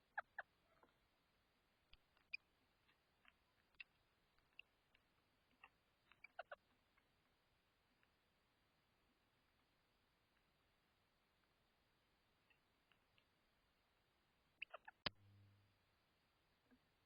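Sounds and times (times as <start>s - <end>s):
birds pecking clicks and taps: 1.9s - 7.4s.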